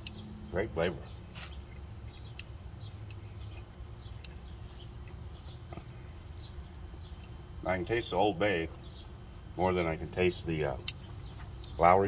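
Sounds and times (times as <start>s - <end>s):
faint bird chirps: 0.0s - 9.2s
steady low hum: 0.0s - 12.0s
light clicks: 10.8s - 11.8s.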